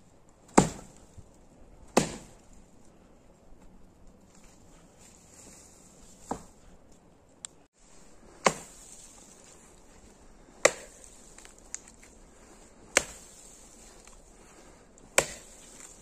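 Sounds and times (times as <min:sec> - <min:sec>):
axe chopping wood: 0:00.5 - 0:01.0, 0:01.9 - 0:02.4, 0:06.2 - 0:06.6, 0:08.4 - 0:09.1, 0:10.5 - 0:12.1, 0:12.9 - 0:14.2, 0:15.0 - 0:16.0.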